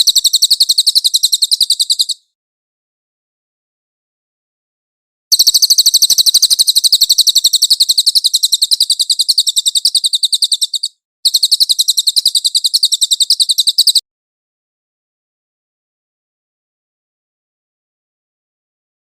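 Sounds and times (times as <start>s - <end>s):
songbird high-pitched trill: 0.0s - 2.2s, 5.3s - 14.0s.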